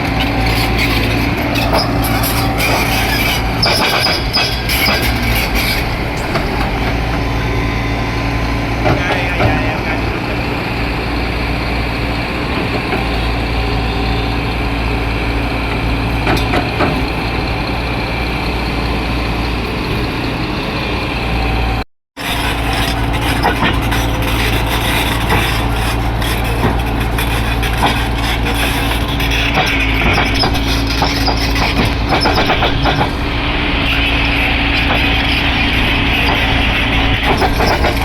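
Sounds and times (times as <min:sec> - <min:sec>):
heavy diesel machinery running: 0:00.0 - 0:38.0
clattering and knocks: 0:22.2 - 0:38.0.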